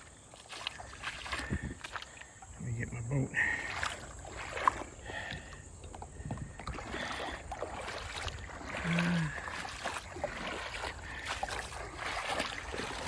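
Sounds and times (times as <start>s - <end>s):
water sloshing and splashing: 0.0s - 13.0s
person grunting: 8.8s - 9.4s.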